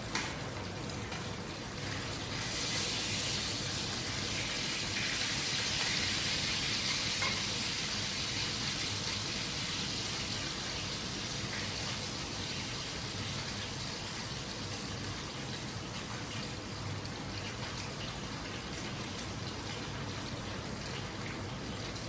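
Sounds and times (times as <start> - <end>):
food sizzling in hot oil: 1.8 - 14.6.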